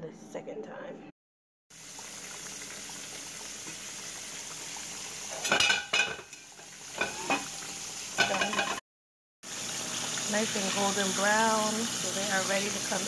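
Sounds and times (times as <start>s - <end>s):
pork chops sizzling in oil: 1.7s - 8.8s, 9.4s - 13.0s
metal cookware clanking: 5.3s - 8.8s.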